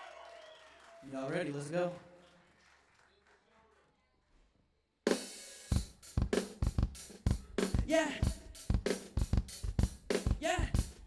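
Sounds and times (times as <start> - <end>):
hip-hop drum beat: 5.1 - 11.0
man calling yeah: 7.3 - 8.7, 10.2 - 11.0.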